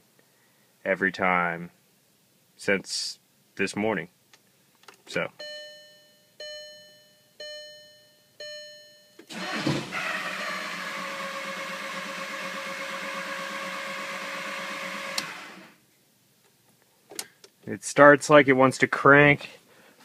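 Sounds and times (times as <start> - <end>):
dashboard chime: 5.4 - 9.2
starter cranking diesel engine: 9.3 - 15.7.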